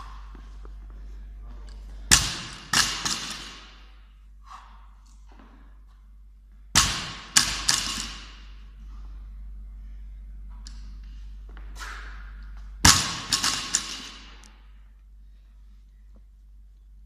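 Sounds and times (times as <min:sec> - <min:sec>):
barbell dropped on floor: 0:02.1 - 0:03.8, 0:06.8 - 0:08.6, 0:12.8 - 0:14.4.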